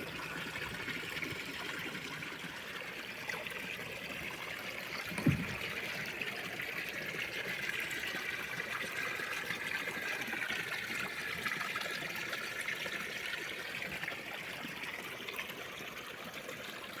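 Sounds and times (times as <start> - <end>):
pool vacuum water flowing: 0.0 - 17.0
low thump: 5.1 - 5.7.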